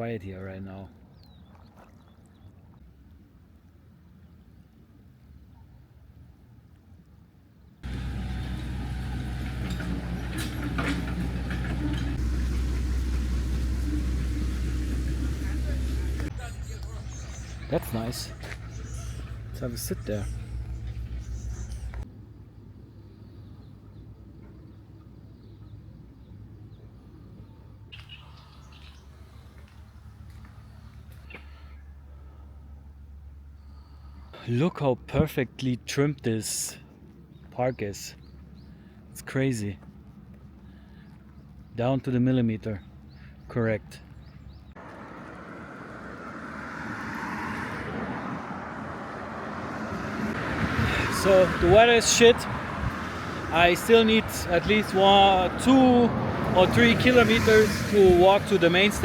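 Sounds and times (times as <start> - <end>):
passing vehicle: 7.8 - 22.1, 44.7 - 59.0
small birds chirping: 7.8 - 22.1, 23.1 - 32.0, 36.8 - 45.0
low background rumble: 7.8 - 23.8.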